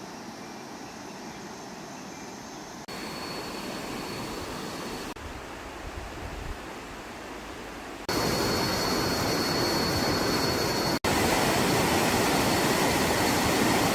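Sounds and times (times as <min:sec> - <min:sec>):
thin steady high tone: 0:00.6 - 0:05.2, 0:08.1 - 0:11.0
rushing river water: 0:02.9 - 0:13.9.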